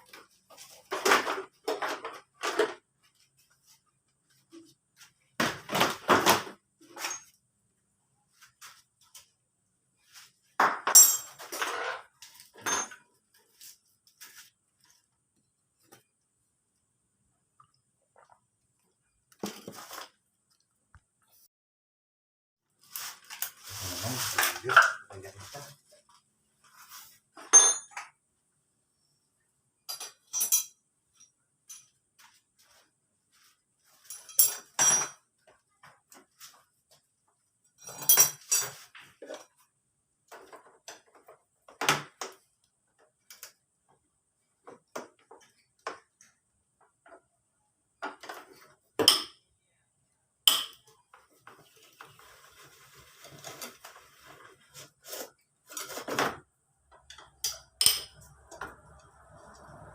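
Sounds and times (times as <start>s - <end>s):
metal tools clinking and knocking: 10.8s - 11.9s, 12.5s - 13.1s, 27.4s - 28.1s, 29.9s - 32.0s, 33.9s - 35.3s, 37.8s - 38.9s.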